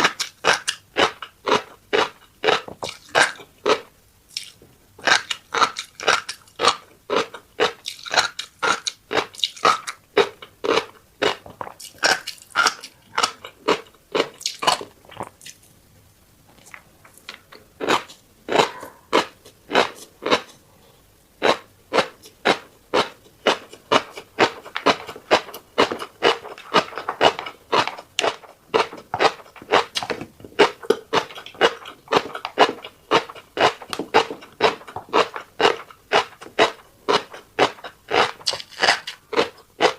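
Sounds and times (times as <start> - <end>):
chewing crunchy food: 0.0 - 15.8, 16.4 - 39.9.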